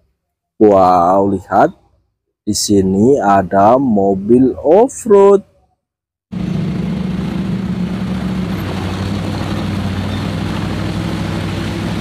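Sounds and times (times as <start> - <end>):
engine running under load: 6.3 - 12.0.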